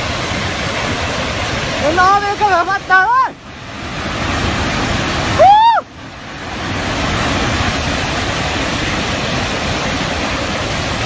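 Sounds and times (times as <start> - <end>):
surging water roaring: 0.0 - 11.0
person crying out: 5.4 - 5.8.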